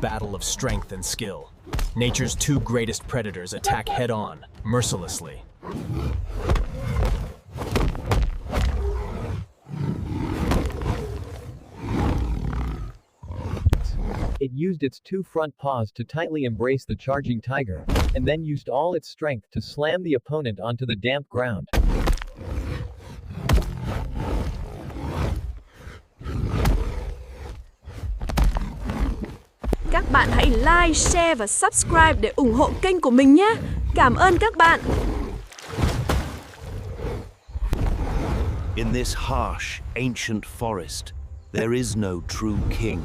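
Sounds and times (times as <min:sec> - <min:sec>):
big cats roaring and snarling: 0:05.3 - 0:14.4, 0:21.8 - 0:39.6.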